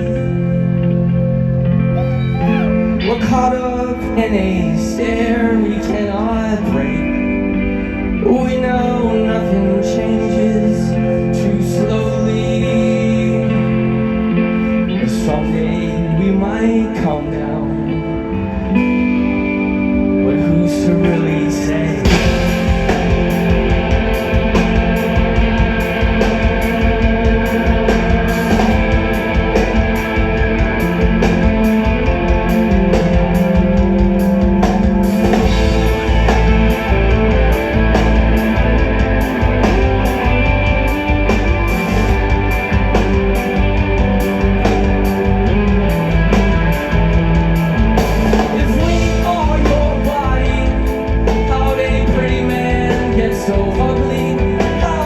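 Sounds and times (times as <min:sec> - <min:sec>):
bass guitar: 0:00.0 - 0:55.0
distorted electric guitars: 0:00.0 - 0:55.0
drum kit beat: 0:22.1 - 0:55.0.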